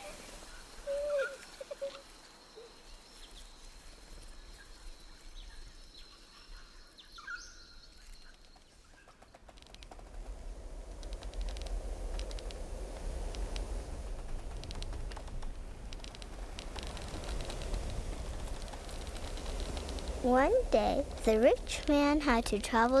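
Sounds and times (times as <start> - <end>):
low rumble: 10.0 - 23.0.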